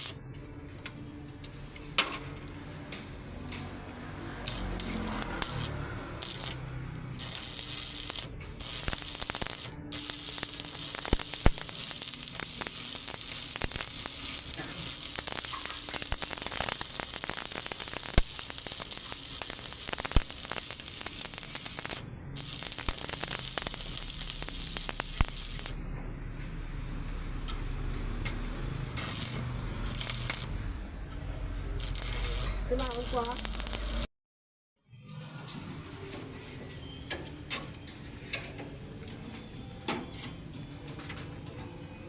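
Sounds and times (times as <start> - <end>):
welding arc crackling sizzle: 0.0 - 0.2, 3.0 - 25.8, 27.2 - 30.9, 31.6 - 34.1.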